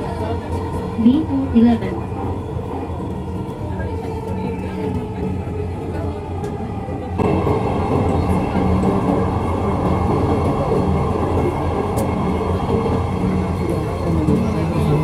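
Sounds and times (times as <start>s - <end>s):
train rumbling on track: 0.0s - 15.0s.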